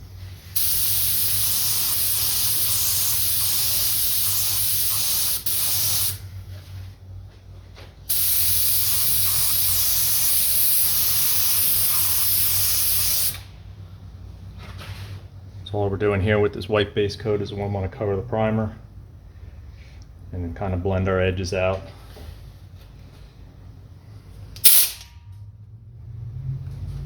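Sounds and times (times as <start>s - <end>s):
paint spray hiss: 0.4s - 6.2s, 8.1s - 13.6s.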